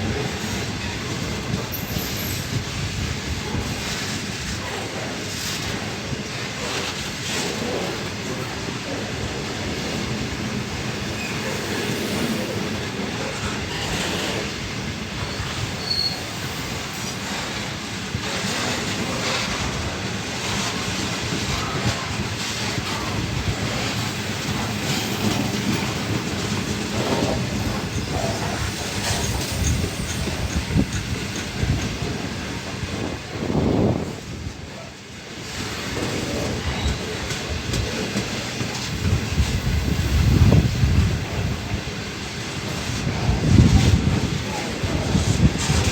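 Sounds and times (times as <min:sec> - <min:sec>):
train wheels rumbling on rails: 0:00.0 - 0:45.9
wheel squeal: 0:15.2 - 0:17.0, 0:27.1 - 0:31.5.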